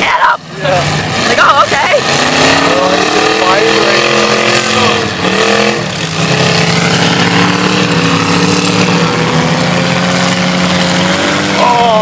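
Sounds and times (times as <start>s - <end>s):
car engines running loud: 0.0s - 12.0s.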